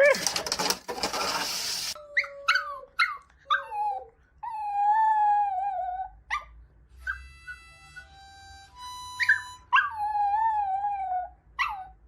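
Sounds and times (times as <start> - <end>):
dog whining yips: 6.0 - 8.1, 9.1 - 12.0
dog yelp: 6.3 - 8.1, 9.2 - 10.3, 11.6 - 12.0.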